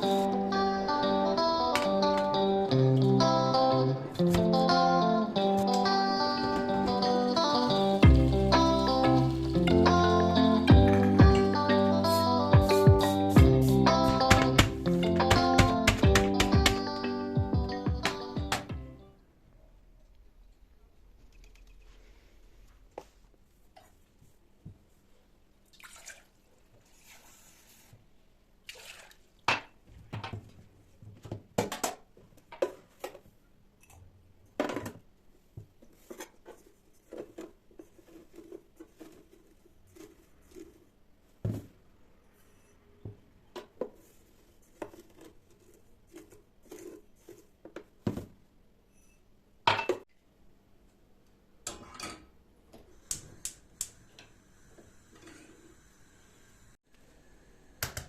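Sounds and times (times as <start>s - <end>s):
kitchenware clattering: 49.7s - 50.1s.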